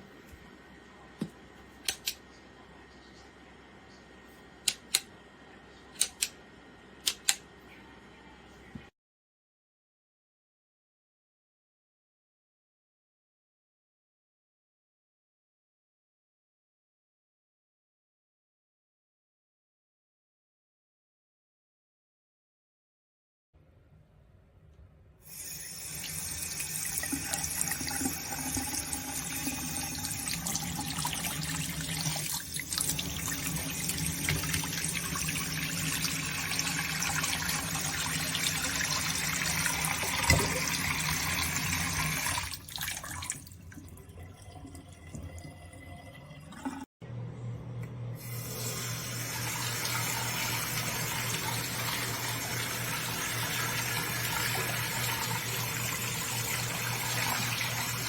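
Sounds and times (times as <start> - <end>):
water running into sink basin: 25.3 - 46.9, 48.2 - 58.0.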